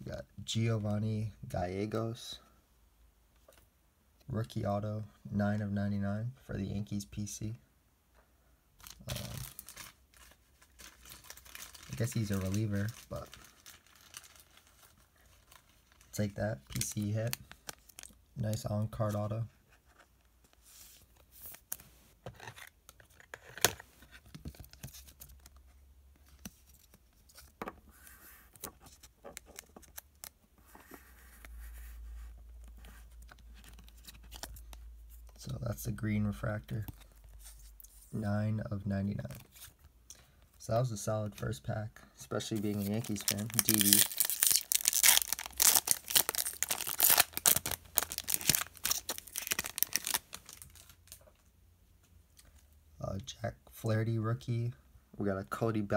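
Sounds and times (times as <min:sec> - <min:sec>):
foil wrapper tearing and crinkling: 0:10.7 - 0:14.9, 0:42.7 - 0:51.2
trading cards clicking and rustling: 0:42.6 - 0:51.2.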